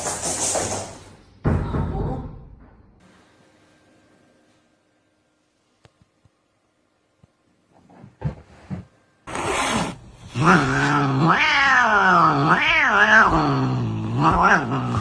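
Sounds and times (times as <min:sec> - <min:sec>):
cat yowling: 0:10.3 - 0:15.0.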